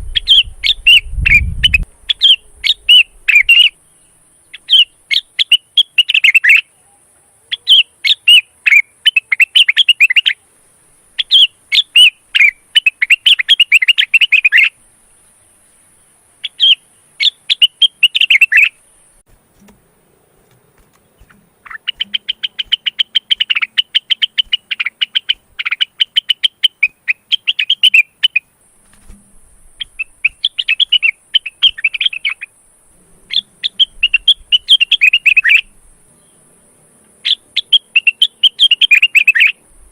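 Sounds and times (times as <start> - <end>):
bird singing high twittering: 0.0 - 6.8, 11.2 - 15.2, 16.4 - 19.2, 21.0 - 28.5, 29.8 - 32.6, 33.2 - 36.6, 37.2 - 39.6.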